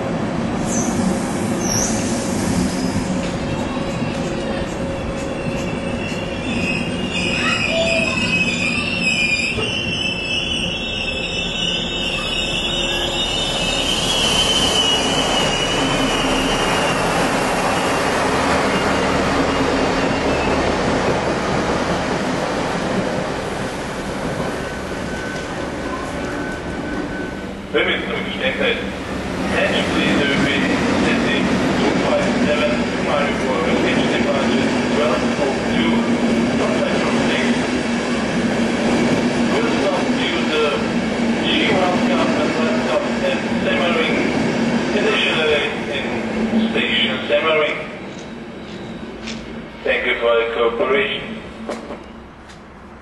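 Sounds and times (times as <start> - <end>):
railway coaches rumbling past: 0.0 - 53.0
steel wheel squeal: 3.7 - 17.2.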